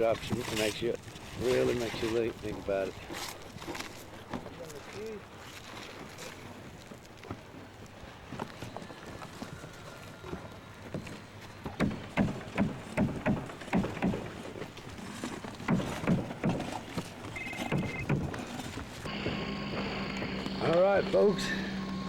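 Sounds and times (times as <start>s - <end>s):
hammer striking nails: 11.8s - 14.4s, 15.6s - 16.8s, 17.5s - 18.4s.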